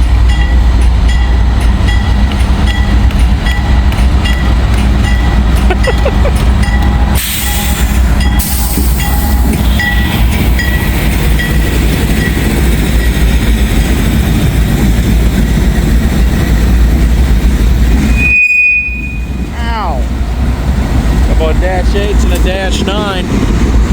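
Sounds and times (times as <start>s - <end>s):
freight train rumbling past: 0.0s - 23.9s
hiss burst: 7.2s - 9.2s.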